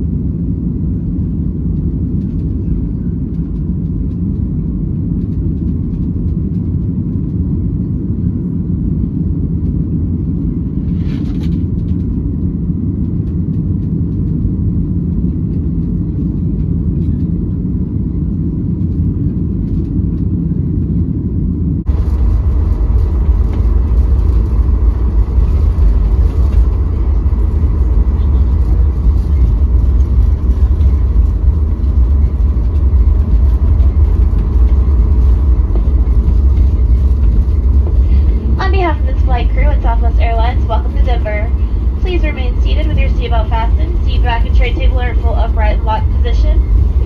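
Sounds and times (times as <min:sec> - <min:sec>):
airliner cabin rumble: 0:00.0 - 0:47.0.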